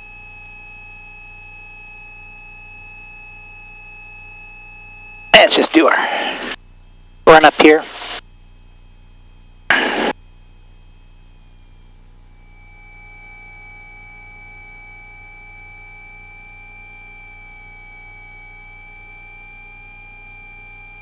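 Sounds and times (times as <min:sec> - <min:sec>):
short hiss: 0:09.7 - 0:10.1.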